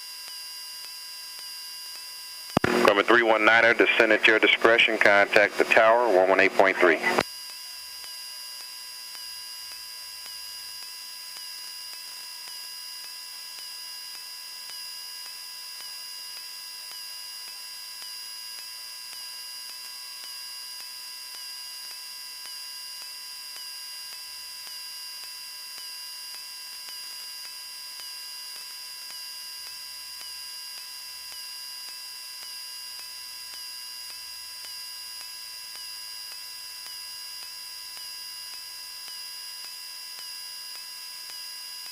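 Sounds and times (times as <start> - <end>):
electrical hum and high whine: 0.0 - 41.9
intercom hiss: 2.6 - 7.2.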